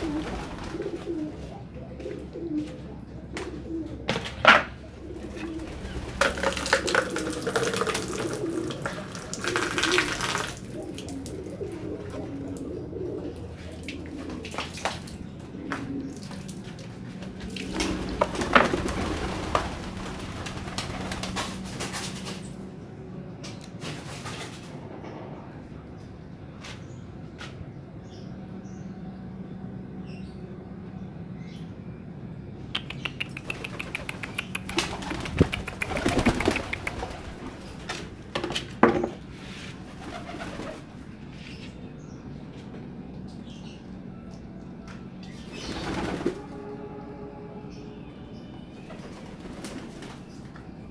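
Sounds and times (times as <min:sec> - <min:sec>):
pigeons cooing: 0:00.0 - 0:22.8, 0:32.8 - 0:44.1, 0:44.7 - 0:50.9.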